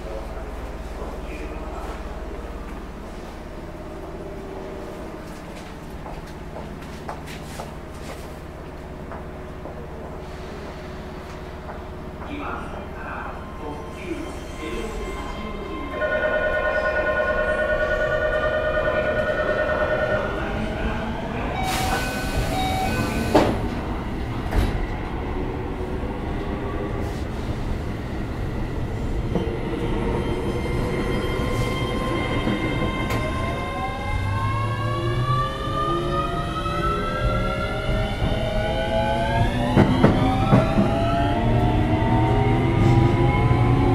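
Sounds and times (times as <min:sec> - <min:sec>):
train running: 0:00.0 - 0:34.6.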